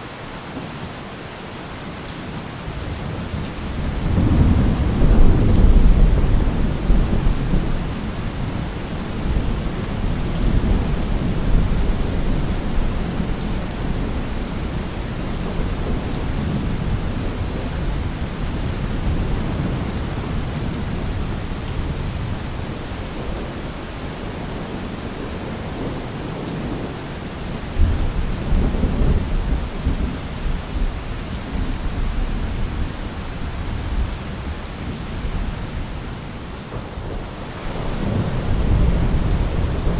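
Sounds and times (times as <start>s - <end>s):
heavy rain: 0.0s - 39.9s
rolling thunder: 3.7s - 22.4s.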